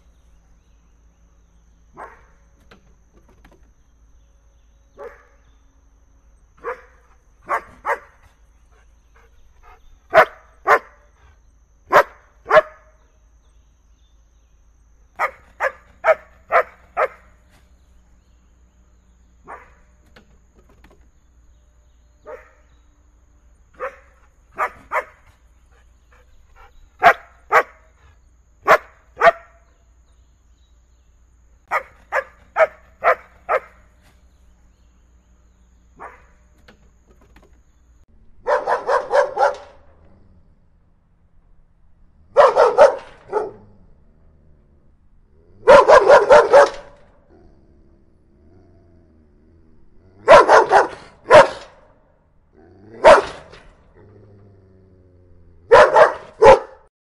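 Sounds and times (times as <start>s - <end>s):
big dog barking: 1.9s - 2.4s, 5.0s - 5.4s, 6.6s - 11.2s, 11.9s - 12.9s, 15.2s - 17.4s, 19.4s - 19.9s, 22.2s - 22.8s, 23.7s - 29.8s, 31.7s - 33.9s, 35.9s - 36.4s, 38.4s - 40.1s, 42.3s - 43.8s, 45.6s - 47.2s, 50.1s - 52.0s, 52.7s - 54.4s, 55.6s - 56.9s.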